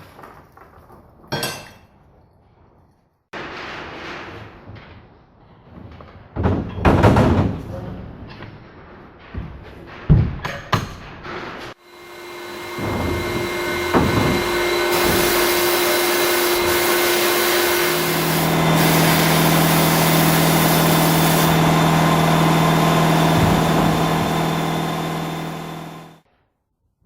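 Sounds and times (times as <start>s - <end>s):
loud machine hiss: 11.8s - 26.2s
motor hum: 11.8s - 26.2s.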